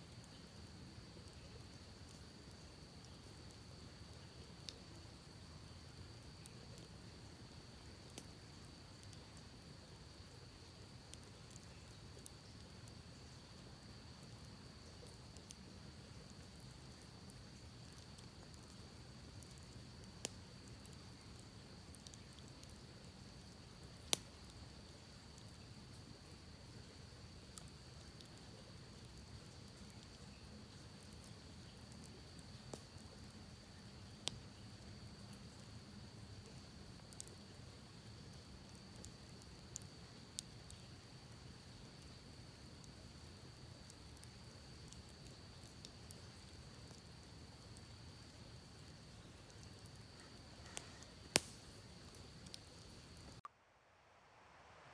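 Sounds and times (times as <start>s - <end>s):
campfire wood crackling: 0.0s - 53.4s
fire pops: 43.8s - 53.4s
faint high-pitched tone: 53.4s - 54.9s.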